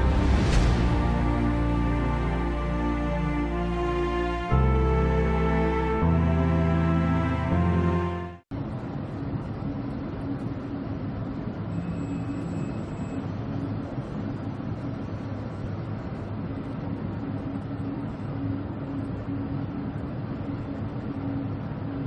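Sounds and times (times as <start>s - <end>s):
even rushing noise: 0.0s - 3.8s
ship engine drone: 0.0s - 22.0s.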